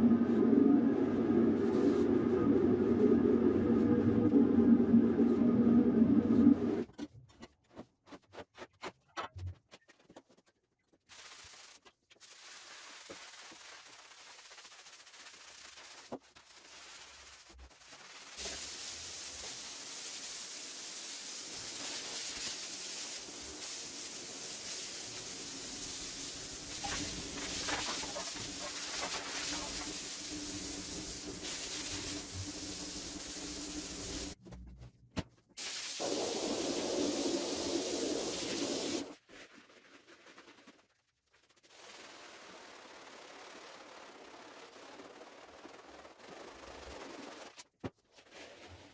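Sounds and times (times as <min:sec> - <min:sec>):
pressure washer spraying water: 0:18.3 - 0:34.4, 0:35.6 - 0:39.1.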